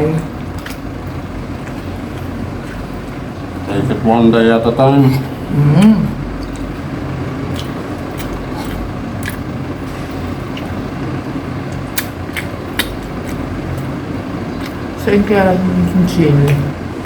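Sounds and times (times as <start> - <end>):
low background hum: 0.0 - 17.0
person chewing wetly: 0.3 - 3.7, 5.1 - 15.0.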